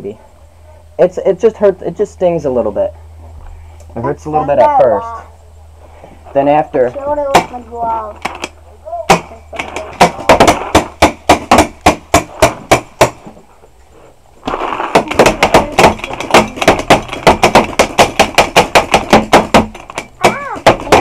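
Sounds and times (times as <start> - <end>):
paintball gun firing: 9.1 - 13.2, 14.4 - 21.0.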